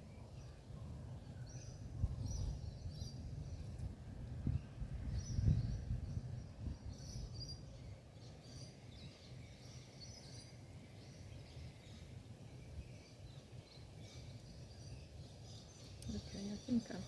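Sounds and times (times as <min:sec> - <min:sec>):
birds chirping: 0:08.4 - 0:17.0
low outdoor rumble: 0:15.6 - 0:17.0.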